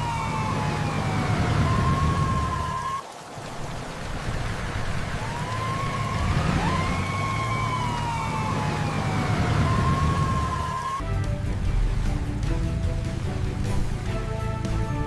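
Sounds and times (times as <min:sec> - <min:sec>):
emergency vehicle siren wavering: 0:00.0 - 0:03.1, 0:04.5 - 0:11.0
music: 0:11.0 - 0:15.0.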